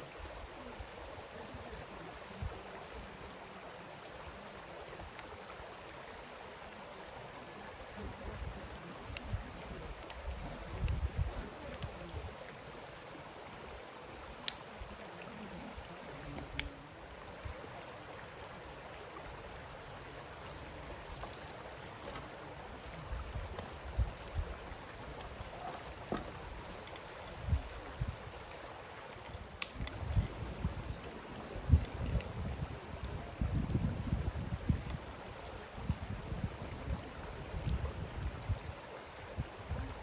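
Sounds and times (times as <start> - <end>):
wind rumble on microphone: 7.9 - 12.4, 20.0 - 28.6, 29.2 - 40.0.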